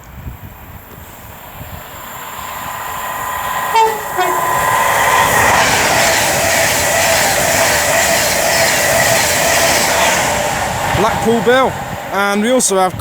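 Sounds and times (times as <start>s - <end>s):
electric train approaching: 0.0s - 13.0s
train horn blast: 3.7s - 5.3s.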